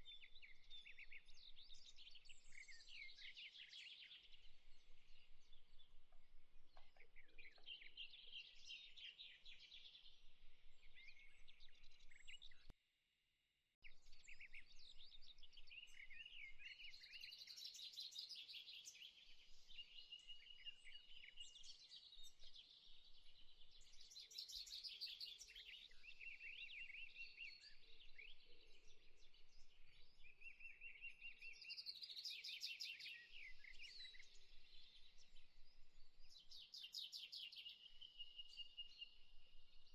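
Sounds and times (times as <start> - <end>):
birds chirping and trilling: 6.7 - 10.3.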